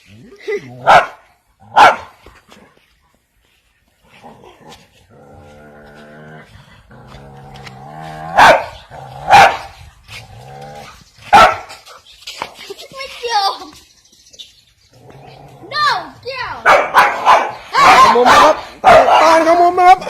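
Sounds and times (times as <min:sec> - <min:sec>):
dog barking: 0:00.8 - 0:02.2, 0:08.3 - 0:09.7, 0:11.3 - 0:11.8, 0:16.6 - 0:19.4
dog growling: 0:04.2 - 0:09.3, 0:10.2 - 0:11.0.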